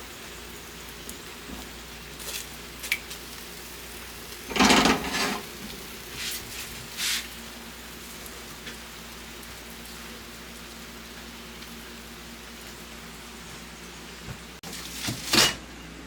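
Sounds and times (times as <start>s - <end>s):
steady rain: 5.6s - 14.0s.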